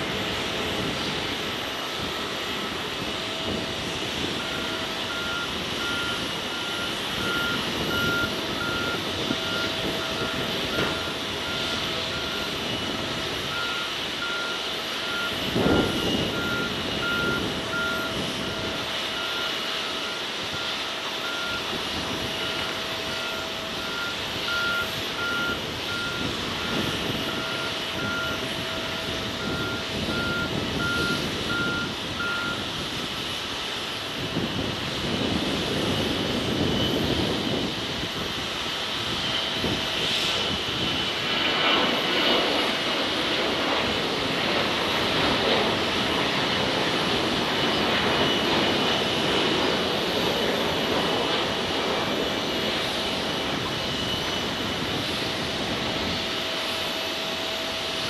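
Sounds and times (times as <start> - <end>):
tow tractor engine running: 3.1 - 32.6, 53.1 - 58.0
high warning beeps: 3.8 - 32.7.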